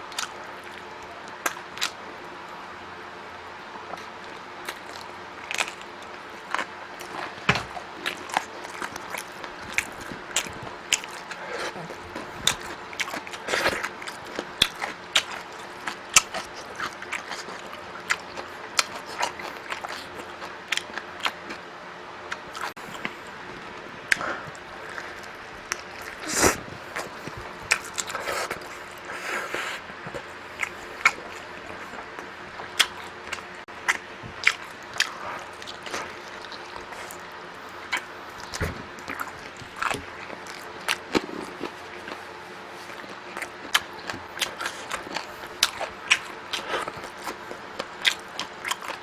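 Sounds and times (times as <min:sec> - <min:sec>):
chewing and mouth smacks: 0:00.1 - 0:02.0, 0:03.8 - 0:21.6, 0:22.3 - 0:49.0
loud slurp: 0:26.1 - 0:27.1.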